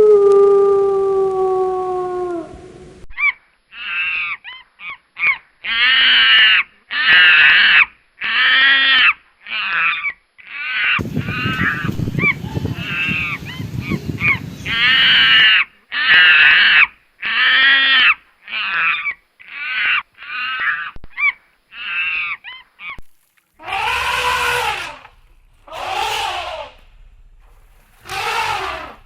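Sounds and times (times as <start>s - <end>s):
noisier animal call: 0.0s - 29.0s
harsh wild animal calls: 3.2s - 29.0s.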